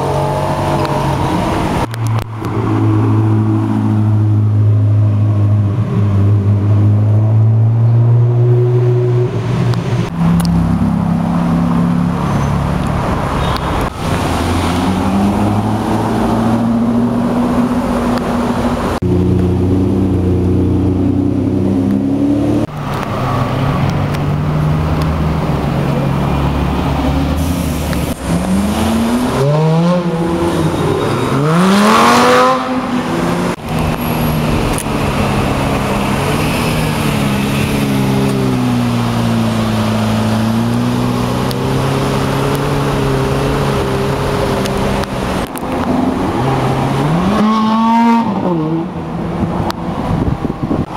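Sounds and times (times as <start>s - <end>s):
car engines running: 0.0s - 8.4s, 9.2s - 50.9s
car accelerating hard: 28.0s - 49.0s.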